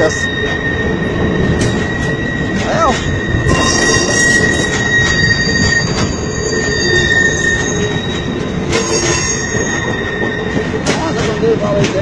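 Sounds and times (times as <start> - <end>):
high thin wheel squeal: 0.0 - 11.1
steel wheels rumbling on rail: 0.0 - 12.0
clacks over rail joints: 8.4 - 9.9, 10.5 - 12.0.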